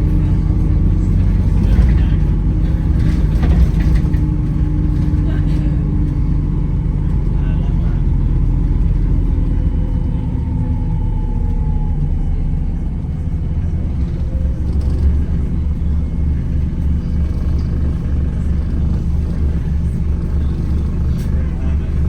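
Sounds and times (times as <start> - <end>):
bus engine and road rumble: 0.0 - 22.0.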